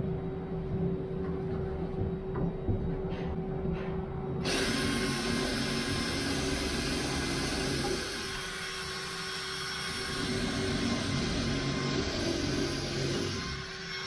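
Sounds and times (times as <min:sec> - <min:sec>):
power tool running with hiss: 0:04.4 - 0:14.0.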